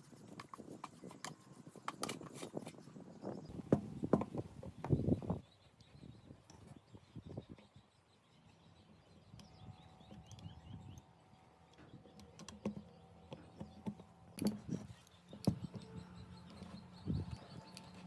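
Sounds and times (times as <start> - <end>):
hand tools clicking and tapping: 12.1 - 15.9.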